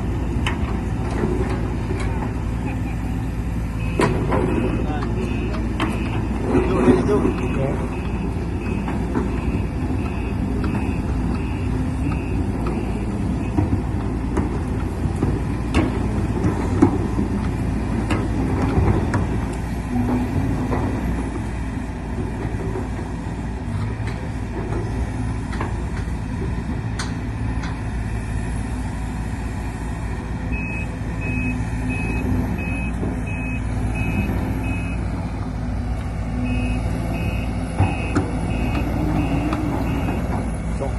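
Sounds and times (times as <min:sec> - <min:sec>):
diesel engine running: 0:00.0 - 0:40.9
warning alarm beeping: 0:03.8 - 0:06.3, 0:06.9 - 0:13.7, 0:36.4 - 0:40.3
sharp knocks and clanks: 0:03.8 - 0:21.4.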